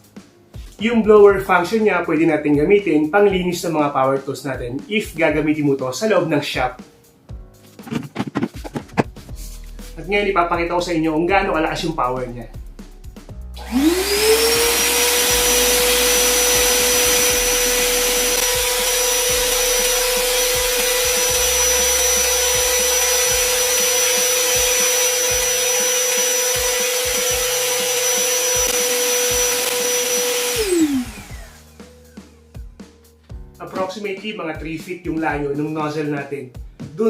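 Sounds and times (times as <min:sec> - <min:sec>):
motor winding down: 0:13.6 - 0:31.7
shop vacuum blowing air: 0:13.6 - 0:32.3.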